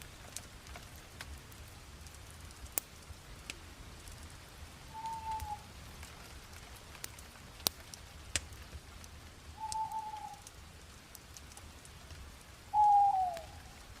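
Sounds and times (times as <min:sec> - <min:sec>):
fire crackling: 0:00.0 - 0:14.0
bird whistled calls: 0:04.9 - 0:05.6, 0:09.6 - 0:10.4, 0:12.7 - 0:13.6.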